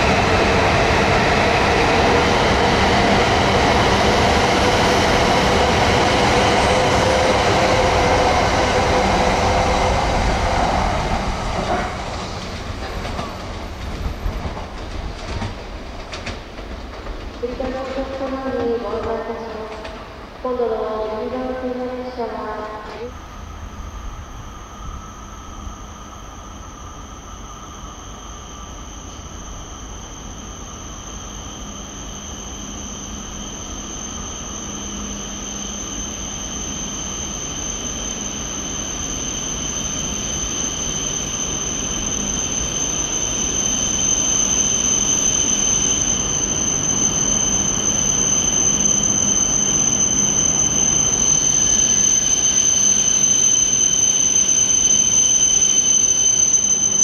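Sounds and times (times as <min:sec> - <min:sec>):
train running noise: 0:00.0 - 0:56.1
high-pitched brake squeal: 0:22.9 - 0:57.0.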